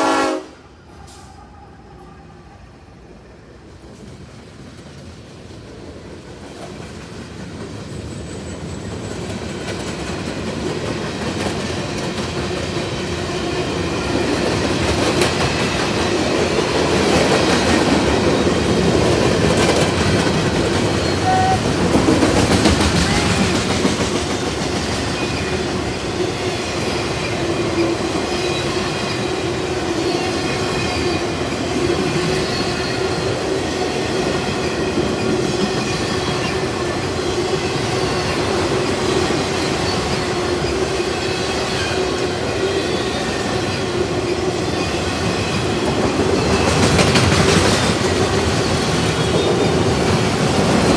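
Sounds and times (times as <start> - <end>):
freight train rumble: 0.0 - 50.9
train wheel clatter: 3.8 - 50.9
high wheel squeal: 20.8 - 21.8, 27.8 - 33.5, 35.8 - 45.6.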